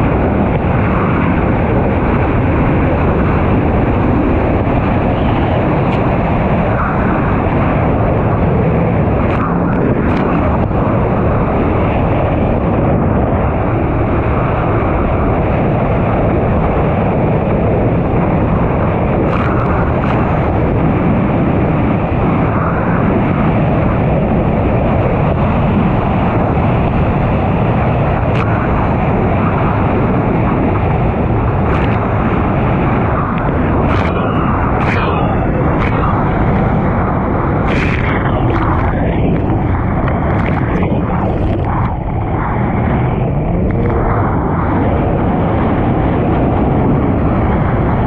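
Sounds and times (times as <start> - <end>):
wind noise on microphone: 0.0 - 48.0
watercraft engine running: 27.9 - 47.4.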